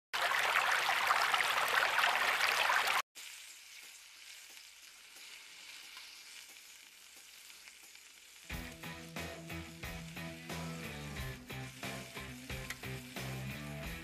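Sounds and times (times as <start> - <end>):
food frying and sizzling: 0.2 - 14.0
light crackles: 3.2 - 8.8.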